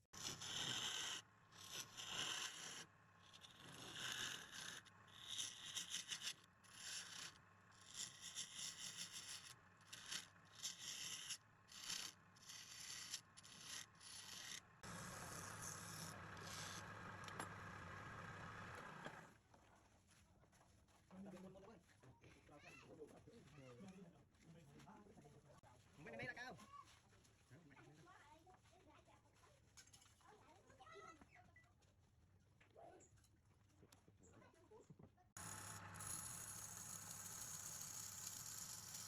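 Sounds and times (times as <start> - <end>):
lathe tool scraping wood: 0.2 - 19.3, 35.4 - 39.0
lathe humming: 12.5 - 19.3, 35.4 - 39.0.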